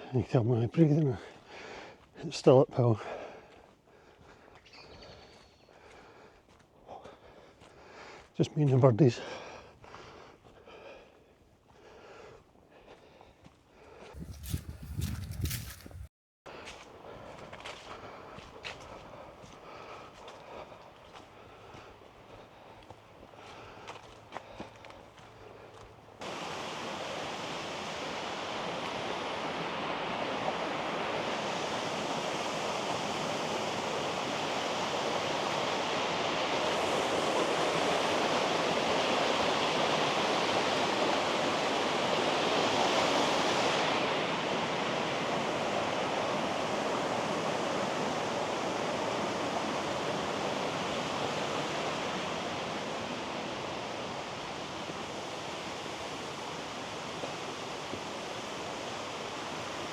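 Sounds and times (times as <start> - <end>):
running water rushing: 17.3 - 59.9.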